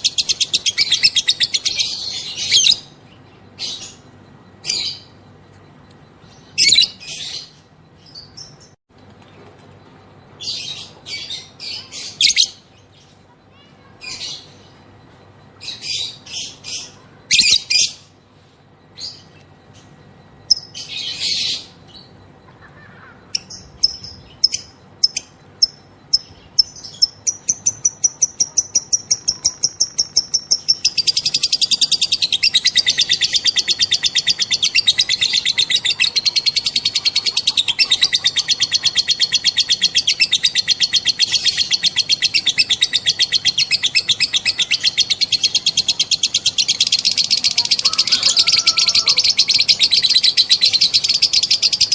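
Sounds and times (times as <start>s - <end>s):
lovebird chirping and trilling: 0.0s - 5.4s, 6.1s - 8.8s, 10.4s - 14.9s, 19.0s - 51.9s.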